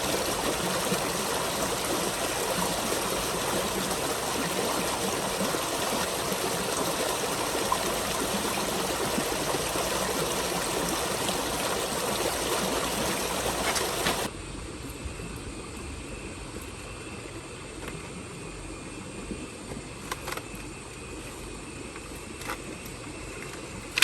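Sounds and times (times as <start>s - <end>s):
flowing water rushing: 0.0s - 14.3s.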